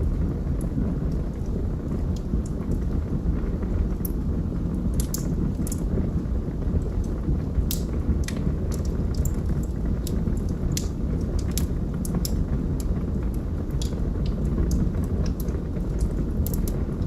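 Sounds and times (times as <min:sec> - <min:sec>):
logs crackling and popping: 0:00.0 - 0:17.0
low rumble of flames: 0:00.0 - 0:17.0.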